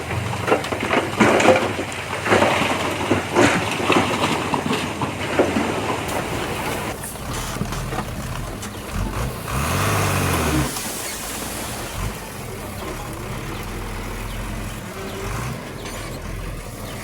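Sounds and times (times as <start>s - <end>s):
soil and rock crunching: 0.0s - 17.0s
earthmoving machinery: 6.1s - 17.0s.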